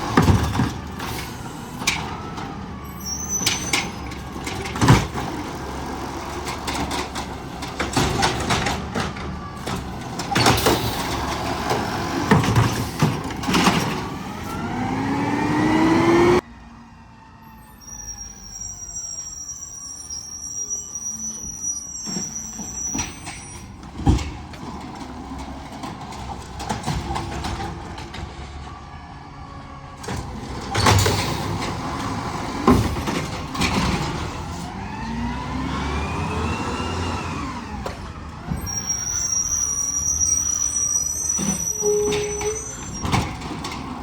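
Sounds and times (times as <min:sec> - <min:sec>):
garbage truck engine running: 0:00.0 - 0:16.4, 0:21.6 - 0:44.0
faint high squealing: 0:02.8 - 0:04.1, 0:17.6 - 0:23.8, 0:38.6 - 0:43.3.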